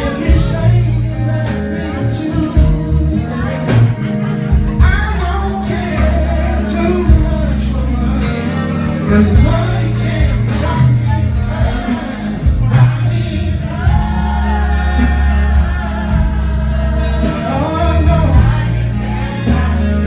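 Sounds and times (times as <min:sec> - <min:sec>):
bass line: 0:00.0 - 0:20.0
person singing: 0:00.0 - 0:20.0
drum beat: 0:03.7 - 0:05.2, 0:09.4 - 0:18.9.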